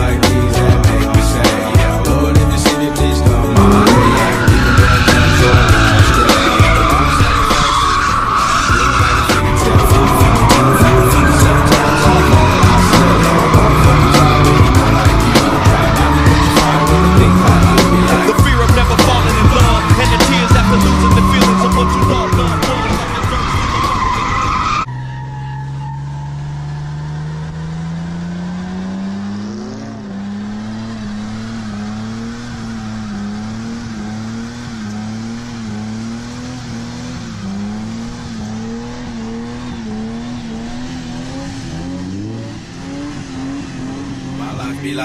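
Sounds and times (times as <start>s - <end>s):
loud music: 0.0s - 24.9s
car engine revving high: 0.0s - 45.0s
tyres squealing and skidding: 0.0s - 45.0s.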